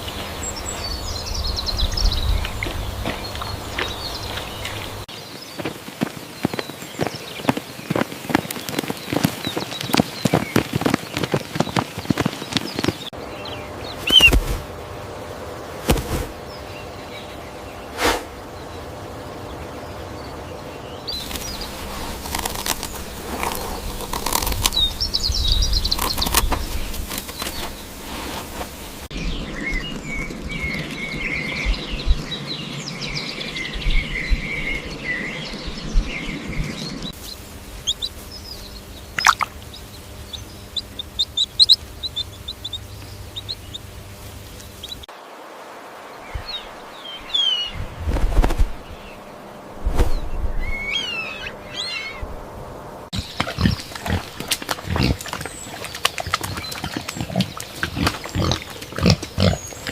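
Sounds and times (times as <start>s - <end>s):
small birds chirping: 0.0s - 45.4s, 46.0s - 52.4s, 53.0s - 59.9s
warbling birdsong: 0.0s - 59.9s
sharp knocks or rustles: 15.8s - 16.4s.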